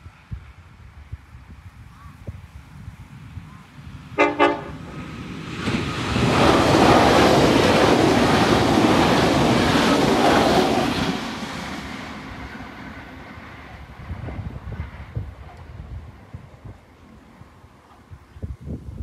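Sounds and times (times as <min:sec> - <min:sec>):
train wheels and carriages rushing: 0:02.4 - 0:18.3
train horn blast: 0:04.2 - 0:04.8.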